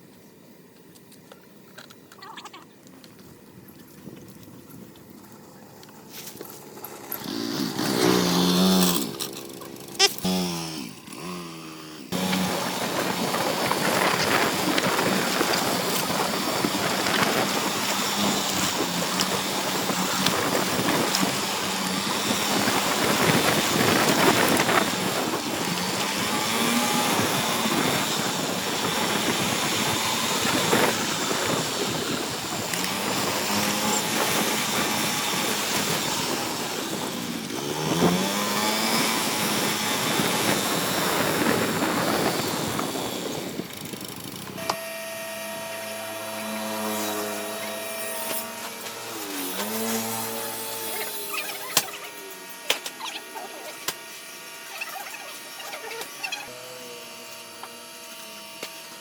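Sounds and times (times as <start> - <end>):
vehicle engine revving: 6.9 - 31.6.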